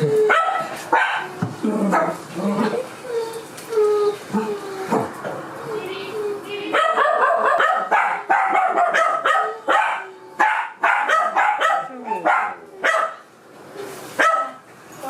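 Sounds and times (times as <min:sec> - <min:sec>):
dog barking: 0:00.3 - 0:01.3, 0:06.7 - 0:13.2, 0:14.2 - 0:14.6.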